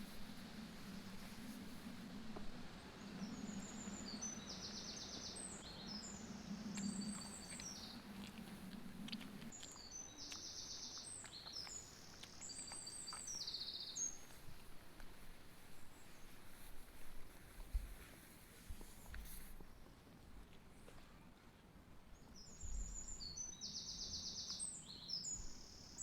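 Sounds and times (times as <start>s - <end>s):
songbird singing trills: 3.0s - 14.4s, 22.4s - 26.0s.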